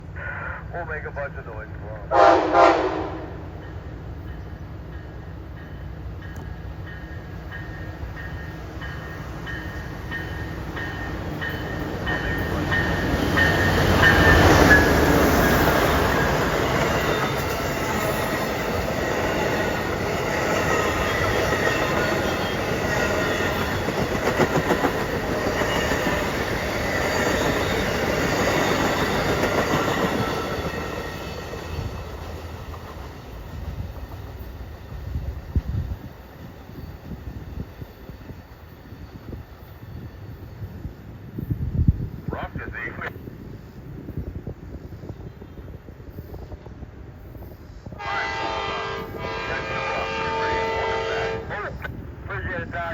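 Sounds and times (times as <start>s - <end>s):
passenger train passing: 0.0s - 52.9s
train wheels clattering on rails: 3.6s - 38.5s.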